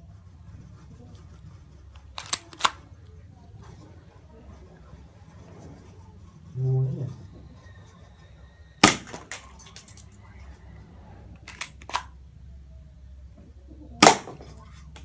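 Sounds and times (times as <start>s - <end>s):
brief low hum: 5.9s - 8.1s
airsoft pistol shot: 8.8s - 9.5s, 14.0s - 14.5s.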